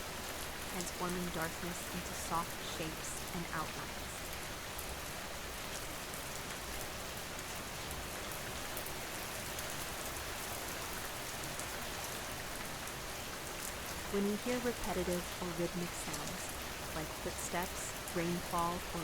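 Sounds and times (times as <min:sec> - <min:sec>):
steady rain hiss: 0:00.0 - 0:19.0
raindrop ticks: 0:00.3 - 0:05.0, 0:11.2 - 0:19.0.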